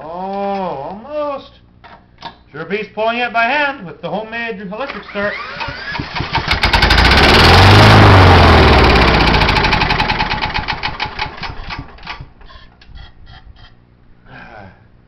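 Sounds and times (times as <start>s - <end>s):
single-cylinder engine running and stalling: 5.3s - 12.4s.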